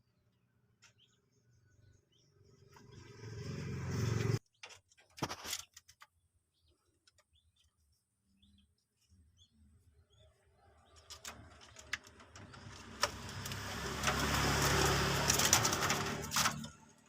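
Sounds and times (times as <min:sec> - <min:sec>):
passing road vehicle: 0:02.4 - 0:04.4, 0:11.2 - 0:17.0
faint bird chirps: 0:06.2 - 0:11.2.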